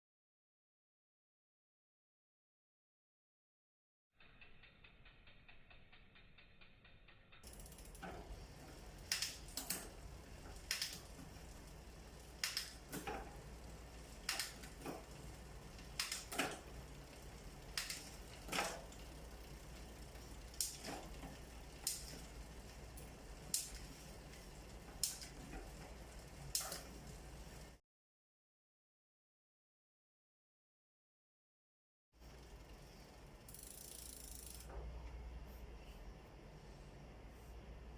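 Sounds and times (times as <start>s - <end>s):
low running hum: 7.4s - 27.8s, 32.2s - 37.9s
bicycle gear shifting clicks: 12.4s - 13.2s.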